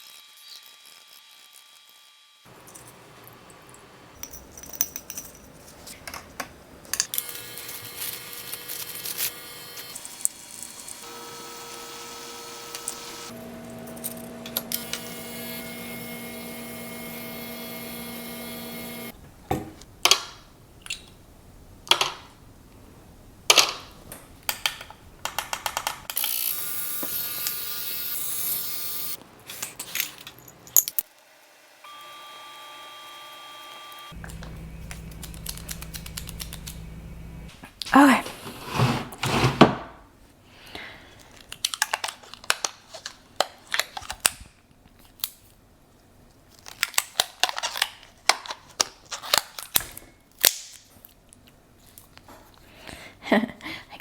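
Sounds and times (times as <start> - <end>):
steady hum: 34.0 - 37.6.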